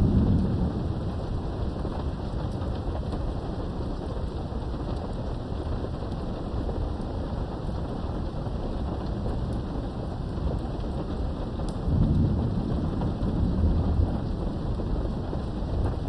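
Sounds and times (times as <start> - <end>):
thunder rumbling: 0.0 - 4.7, 8.1 - 16.0
steady rain: 0.0 - 16.0.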